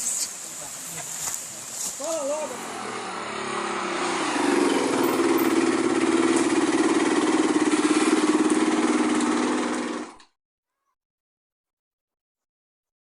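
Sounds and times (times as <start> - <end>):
dirt bike engine running: 2.2 - 10.2.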